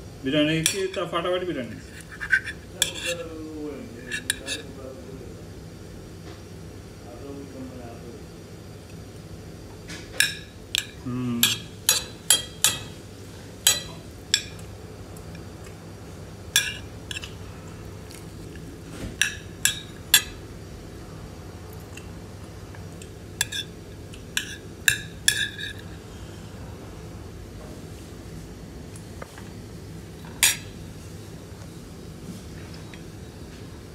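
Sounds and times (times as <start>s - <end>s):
spoon clinking on dishware: 0.6s - 1.0s, 10.2s - 13.0s, 13.6s - 14.6s.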